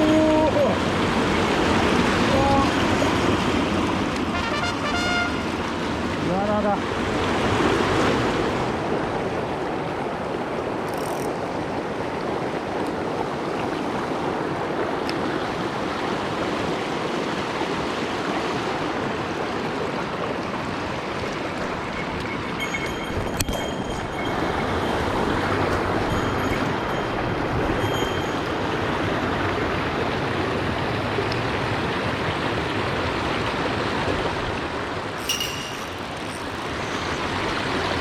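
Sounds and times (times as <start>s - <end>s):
stream water running: 0.0s - 38.0s.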